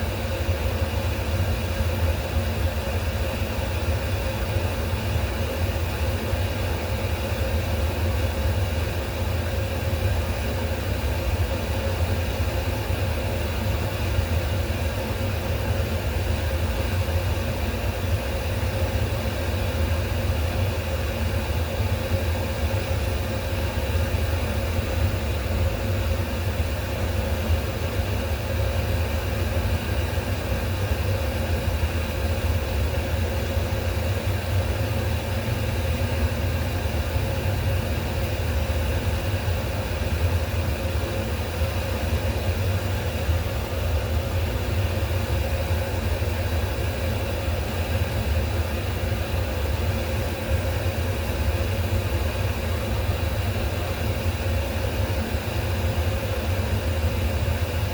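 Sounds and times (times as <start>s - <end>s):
low mechanical hum: 0.0s - 57.9s.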